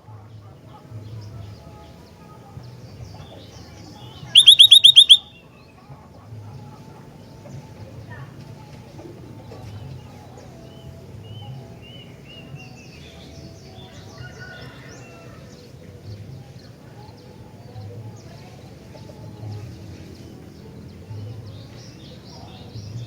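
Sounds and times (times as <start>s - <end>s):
bird chirping and whistling: 4.3s - 5.3s.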